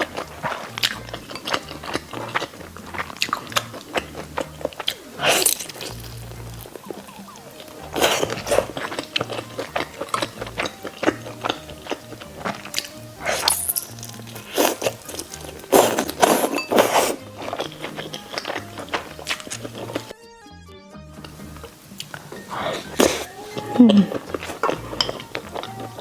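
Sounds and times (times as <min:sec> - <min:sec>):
crunchy chewing of food: 0:00.0 - 0:20.2, 0:21.2 - 0:26.0
background music with bass line: 0:05.4 - 0:16.3, 0:17.2 - 0:26.0.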